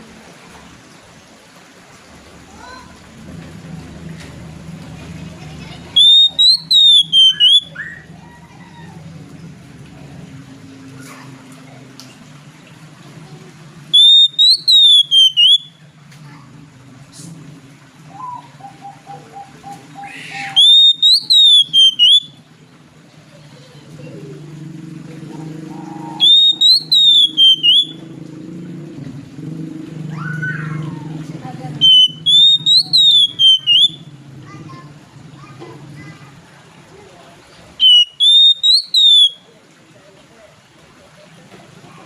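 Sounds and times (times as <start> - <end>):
bird singing whistled phrases: 6.0 - 8.1, 13.9 - 15.8, 18.1 - 22.4, 25.8 - 28.0, 31.8 - 34.1, 37.8 - 39.5.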